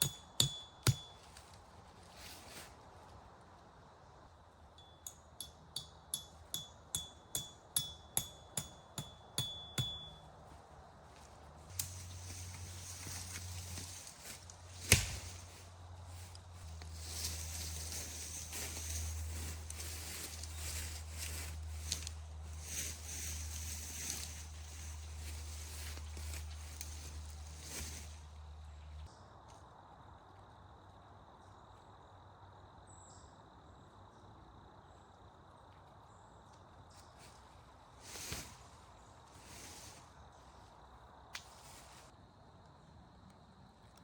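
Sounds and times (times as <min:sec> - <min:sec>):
faint outdoor hiss: 0:09.3 - 0:44.0
rustling and crackling: 0:11.2 - 0:28.2.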